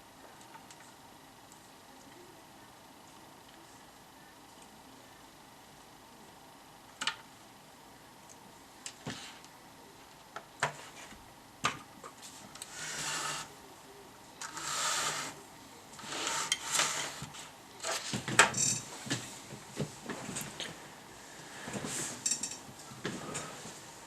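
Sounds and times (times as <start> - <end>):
scraping strokes: 12.2 - 13.5, 14.4 - 15.4, 16.0 - 18.3.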